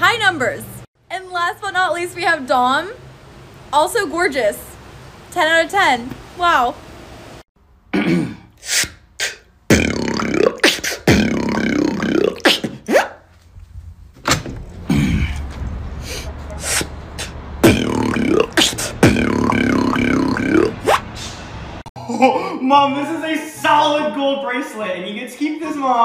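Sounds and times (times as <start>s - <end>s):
man beatboxing: 8.6s - 13.2s, 16.6s - 21.0s.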